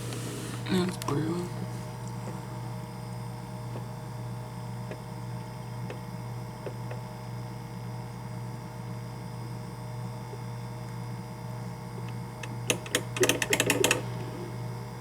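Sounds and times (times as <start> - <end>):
coffee maker humming: 0.0 - 15.0.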